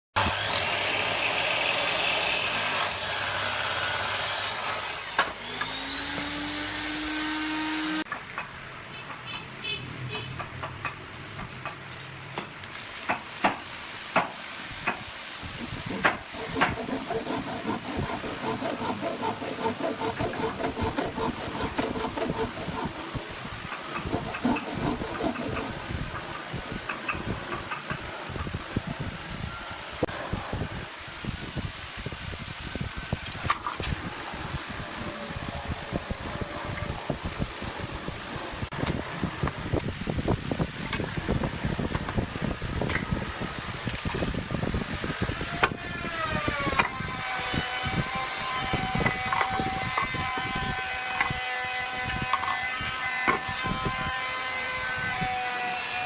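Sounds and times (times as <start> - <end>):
power tool noise with whines: 0.2 - 8.1, 15.1 - 27.2, 31.3 - 56.0.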